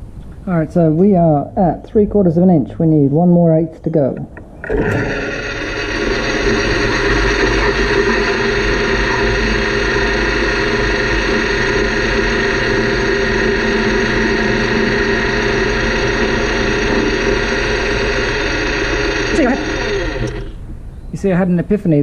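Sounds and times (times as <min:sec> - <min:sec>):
metal lathe cutting metal: 0:04.6 - 0:20.6.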